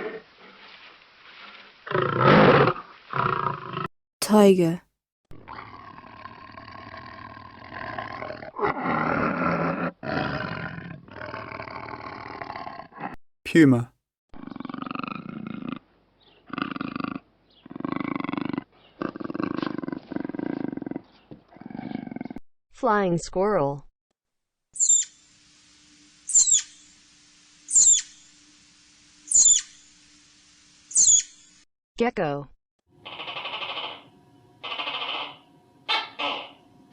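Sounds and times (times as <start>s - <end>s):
tiger roaring: 1.8s - 3.9s, 5.4s - 13.2s, 14.4s - 22.4s
flying squirrel chirps: 24.8s - 25.3s, 26.2s - 27.0s, 27.6s - 28.4s, 29.2s - 30.0s, 30.8s - 31.6s, 33.0s - 36.6s.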